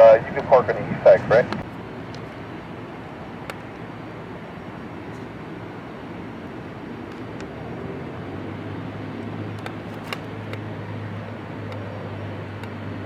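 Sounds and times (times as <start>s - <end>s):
low hum: 0.0s - 13.0s
vehicle engine noise: 0.0s - 13.0s.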